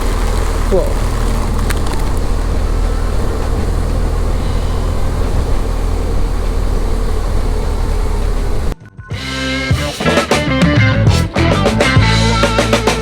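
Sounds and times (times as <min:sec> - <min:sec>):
heavy rain: 0:00.0 - 0:08.8
motorcycle engine running: 0:00.0 - 0:08.8
wet road noise: 0:00.0 - 0:08.8.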